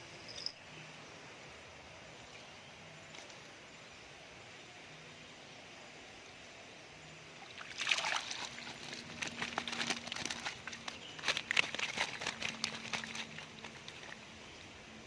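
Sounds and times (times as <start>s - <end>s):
water splashing and sloshing: 7.4s - 14.4s.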